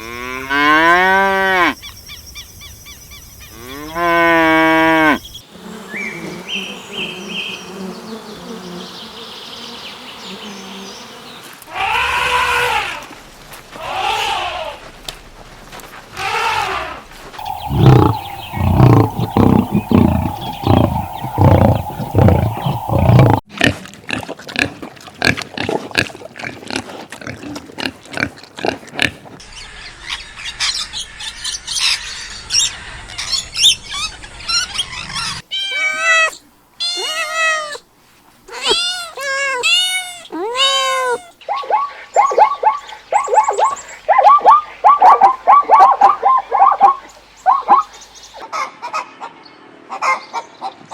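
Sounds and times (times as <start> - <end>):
noisy animal calls: 11.7 - 13.0, 16.2 - 23.4
fast clucking-like calls: 17.4 - 23.4
low rhythmic animal grunting: 17.4 - 23.4
short rising-and-falling animal calls: 17.4 - 23.4.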